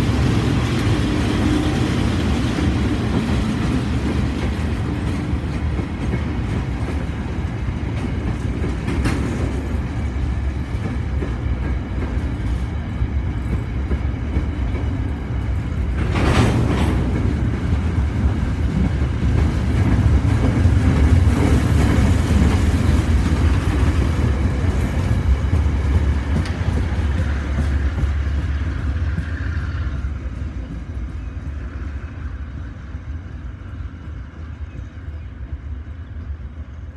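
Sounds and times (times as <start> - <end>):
locomotive engine rumble: 0.0 - 36.9
wagons rolling over rails: 13.4 - 32.7.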